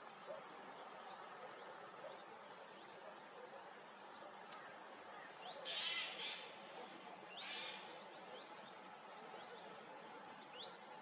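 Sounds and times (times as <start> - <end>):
bird calls: 0.0 - 6.6
steady background hiss: 0.0 - 11.0.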